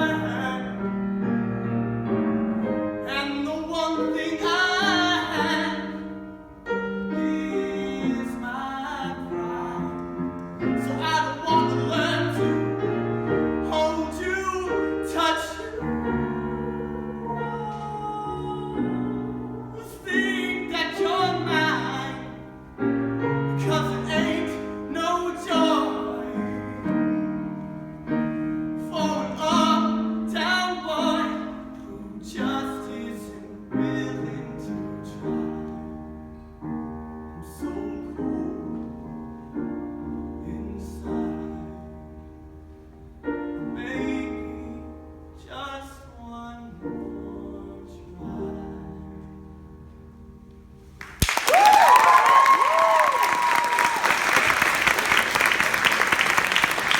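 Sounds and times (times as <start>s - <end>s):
piano chords: 0.0s - 56.9s
person singing: 7.1s - 22.5s.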